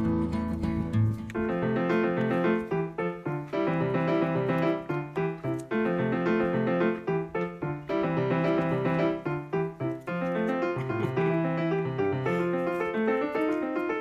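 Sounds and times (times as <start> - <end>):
bouncy piano music: 0.0 - 14.0.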